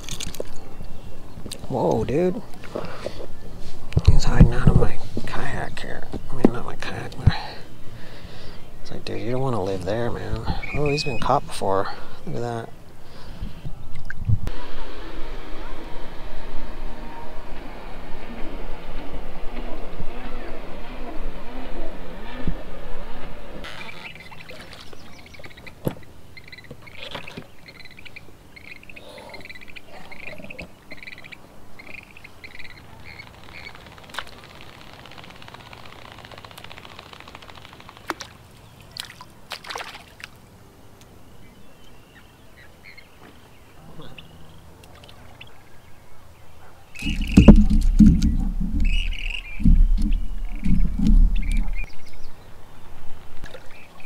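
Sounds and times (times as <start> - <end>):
bird calling: 0.0 - 14.1, 19.4 - 40.3, 41.2 - 54.0
lakeside ambience: 0.0 - 54.0
rumbling and knocking on microphone: 4.0 - 5.4, 47.0 - 51.9.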